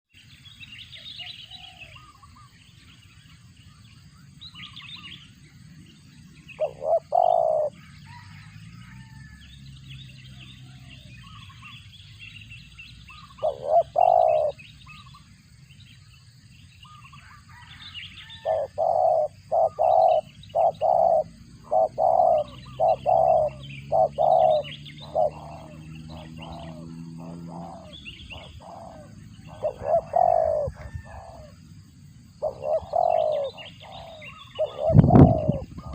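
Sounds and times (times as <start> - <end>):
small birds chirping: 0.1 - 35.9
dove cooing: 6.6 - 8.3, 13.1 - 15.1, 18.4 - 31.6, 32.4 - 35.9.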